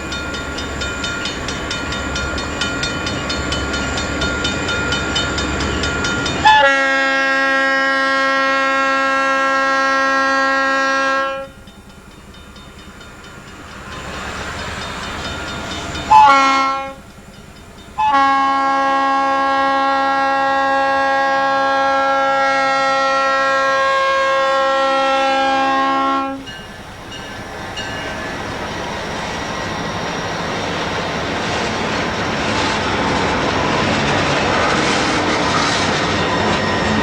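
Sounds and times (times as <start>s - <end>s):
wheels clicking on rail joints: 0.0s - 7.6s, 10.9s - 18.8s, 24.7s - 37.0s
train rumble: 0.0s - 37.0s
locomotive air horn: 6.4s - 11.6s, 16.0s - 17.0s, 18.0s - 26.5s.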